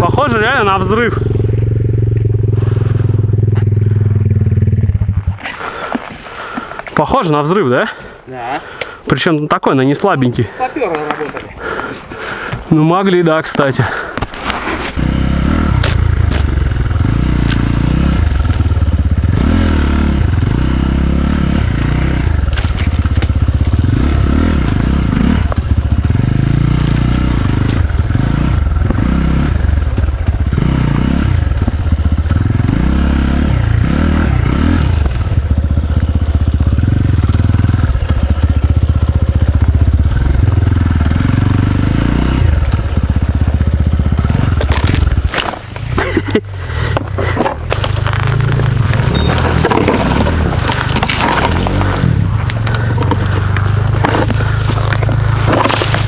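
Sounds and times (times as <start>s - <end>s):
dirt bike engine revving: 0.0s - 6.6s, 13.8s - 56.0s
clatter and scraping: 13.4s - 19.6s, 21.7s - 32.8s, 42.4s - 56.0s.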